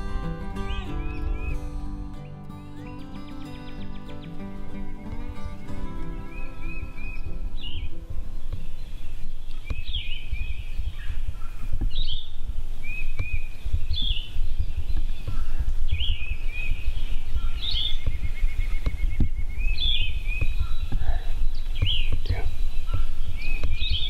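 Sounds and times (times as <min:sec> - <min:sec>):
low uneven outdoor rumble: 0:00.0 - 0:24.0
songbird singing phrase: 0:00.0 - 0:24.0.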